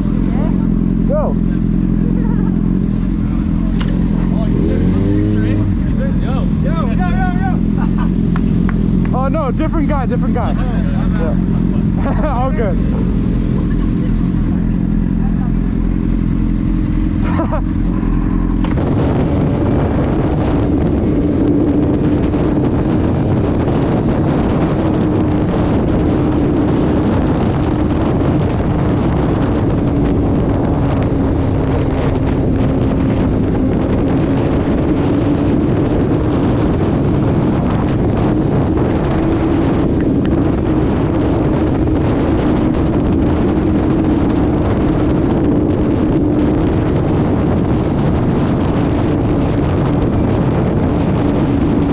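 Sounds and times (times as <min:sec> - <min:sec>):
engine drone: 0:00.0 - 0:51.9
wind rushing on microphone: 0:00.0 - 0:51.9.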